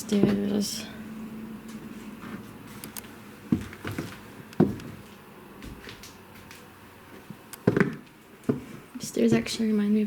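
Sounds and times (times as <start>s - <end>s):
footsteps climbing stairs: 3.5s - 9.8s
stairs creaking: 3.5s - 9.8s.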